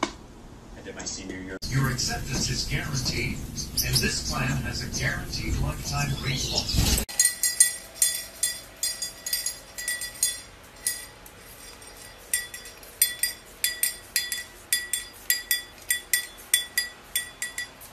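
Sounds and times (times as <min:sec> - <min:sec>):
small metal object clinking: 0:07.1 - 0:17.9.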